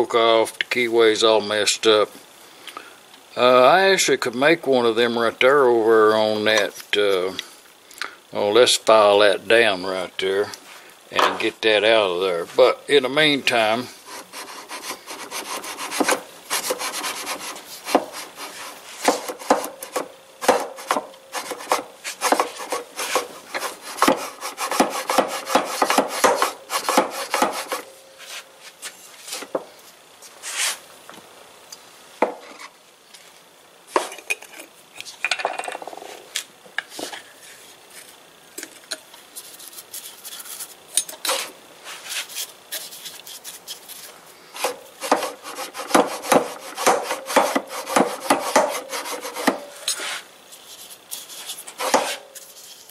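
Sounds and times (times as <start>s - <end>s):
hand file rasping on steel: 14.1s - 20.1s, 20.7s - 27.8s, 44.6s - 50.2s.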